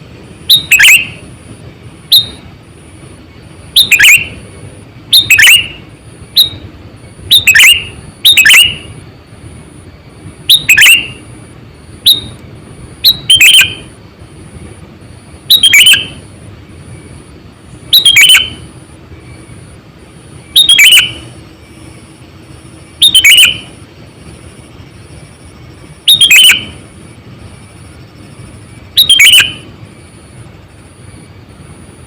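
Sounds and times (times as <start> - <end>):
bird sharp chirping calls: 0.4 - 1.3, 2.0 - 2.5, 3.3 - 4.5, 5.1 - 9.0, 10.4 - 11.3, 12.0 - 12.4, 13.0 - 14.0, 15.4 - 16.3, 16.9 - 19.6, 20.4 - 30.1.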